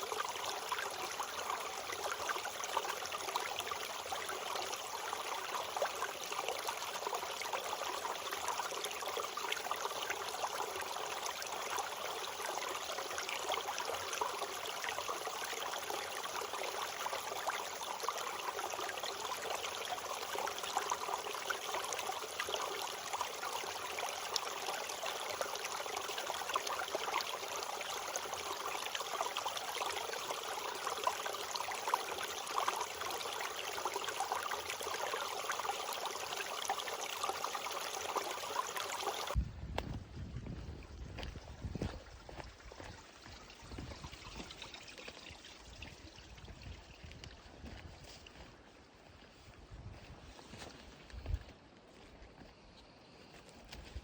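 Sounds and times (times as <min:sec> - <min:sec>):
stream babbling: 0:00.0 - 0:39.4.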